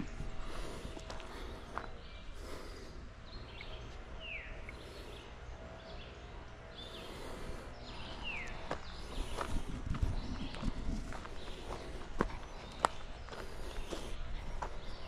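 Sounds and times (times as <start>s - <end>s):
footsteps: 0.0s - 2.0s, 8.0s - 15.0s
birds whistling and chirping: 0.0s - 15.0s
outdoor background noise: 0.0s - 15.0s.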